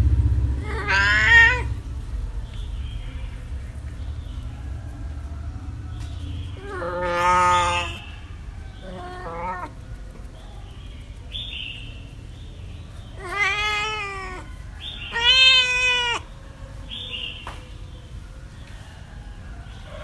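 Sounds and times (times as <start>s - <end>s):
cat meowing: 0.6s - 1.8s, 6.6s - 8.0s, 8.8s - 9.8s, 13.1s - 16.3s.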